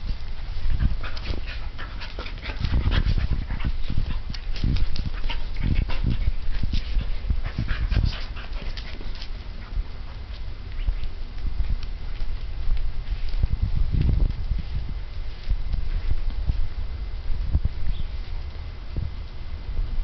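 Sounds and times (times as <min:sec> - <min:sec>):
dogs scuffling: 0:00.0 - 0:16.7
dogs panting: 0:00.1 - 0:11.0.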